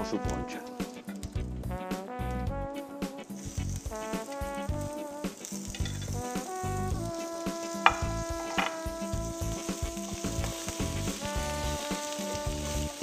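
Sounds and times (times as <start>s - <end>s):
shrimp sizzling in oil: 0.7s - 1.5s, 2.8s - 13.0s
metal tongs clicking on pan: 5.6s - 6.2s.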